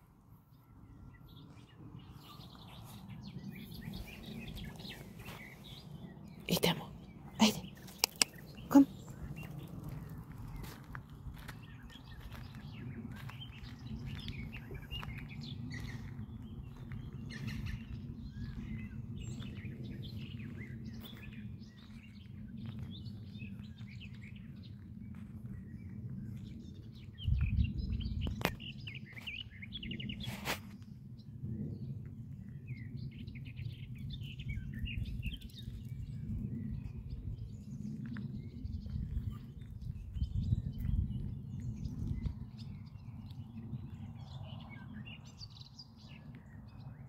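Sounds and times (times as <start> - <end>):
low rumble on microphone: 0.0 - 47.0
songbirds singing: 0.0 - 47.0
sharp clicks: 7.9 - 8.5.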